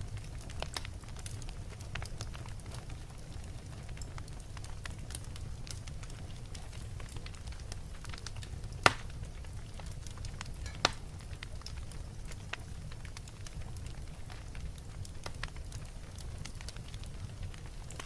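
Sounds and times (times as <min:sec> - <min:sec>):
wood fire crackling: 0:00.0 - 0:18.0
loud sharp pops: 0:08.8 - 0:09.1, 0:10.8 - 0:11.0.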